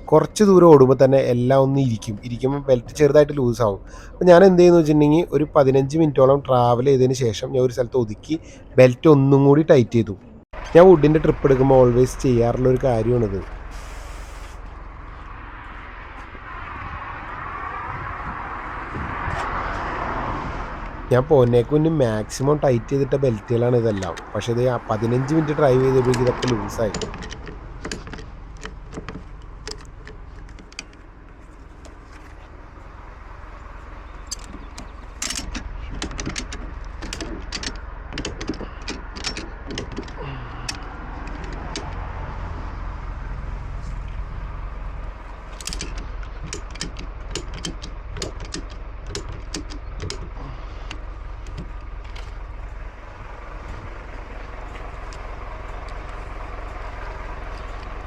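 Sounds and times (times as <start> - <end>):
ratchet strap clicking and creaking: 25.8 - 32.3, 34.1 - 42.2, 45.3 - 52.4
low rumble: 49.9 - 58.0.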